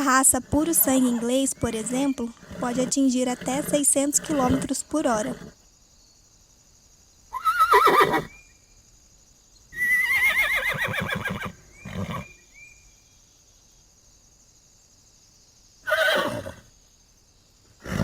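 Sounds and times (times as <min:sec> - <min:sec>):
horse whinnying: 0:00.8 - 0:05.6, 0:07.3 - 0:08.4, 0:09.8 - 0:12.3, 0:15.8 - 0:16.7, 0:17.8 - 0:18.0.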